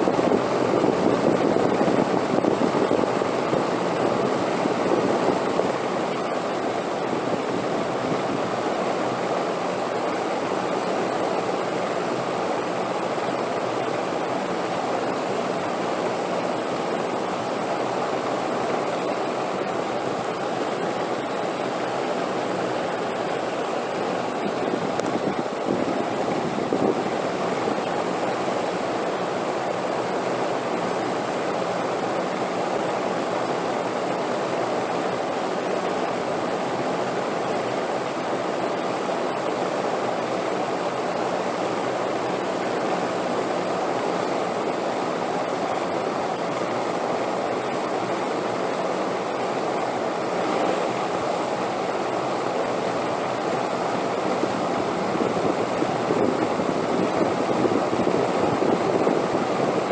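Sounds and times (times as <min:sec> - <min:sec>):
steady wind rushing: 0:00.0 - 0:09.2, 0:20.1 - 0:29.4, 0:53.0 - 0:59.9.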